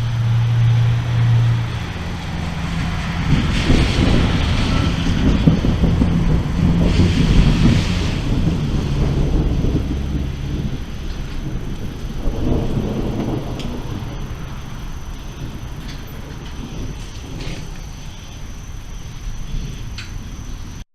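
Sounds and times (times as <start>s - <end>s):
rain: 0.0s - 20.8s
rolling thunder: 0.0s - 20.8s
faint ticks: 19.7s - 20.3s.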